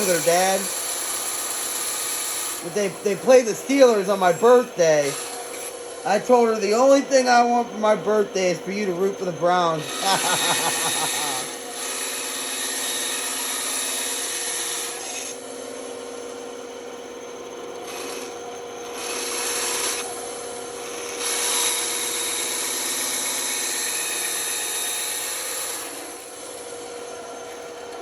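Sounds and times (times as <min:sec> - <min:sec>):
saw blade cutting wood: 0:00.0 - 0:15.8, 0:17.8 - 0:27.6
band saw humming: 0:00.0 - 0:28.0.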